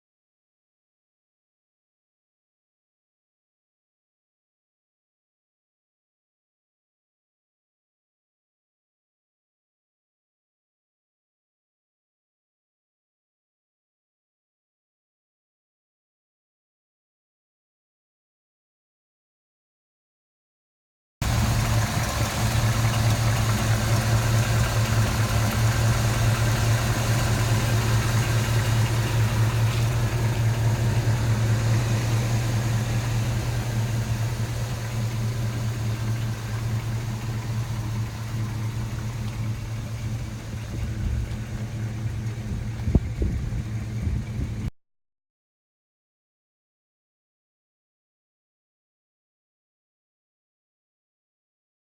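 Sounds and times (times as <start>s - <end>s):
engine idling deep rumble: 21.2s - 44.7s.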